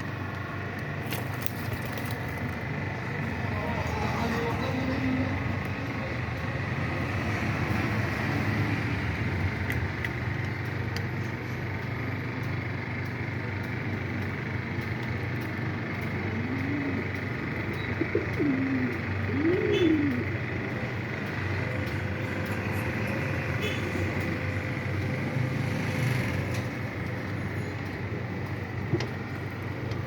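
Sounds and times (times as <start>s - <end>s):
pigeon cooing: 15.9s - 21.1s.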